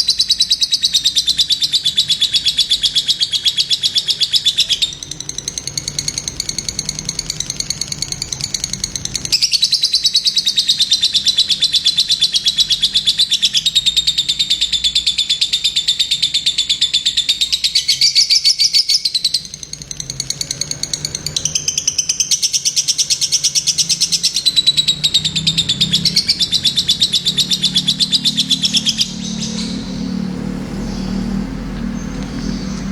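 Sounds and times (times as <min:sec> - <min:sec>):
lovebird chattering song: 0:00.0 - 0:32.9
low rumbling noise: 0:24.4 - 0:32.9.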